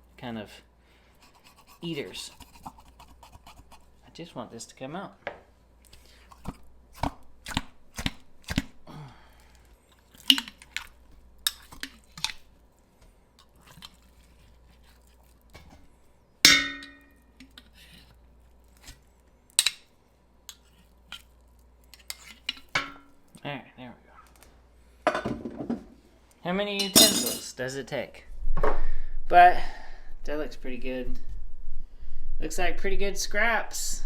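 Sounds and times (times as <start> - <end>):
metallic pot clang: 16.5 - 17.2, 22.8 - 23.1, 26.8 - 27.5.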